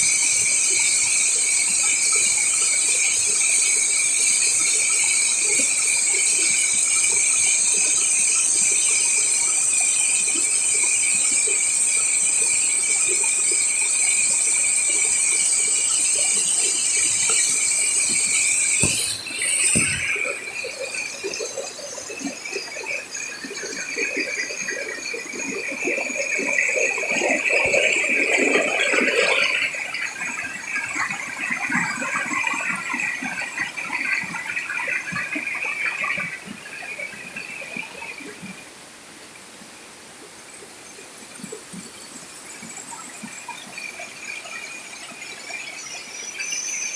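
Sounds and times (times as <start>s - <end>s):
insects shrilling in chorus: 9.8s - 30.8s.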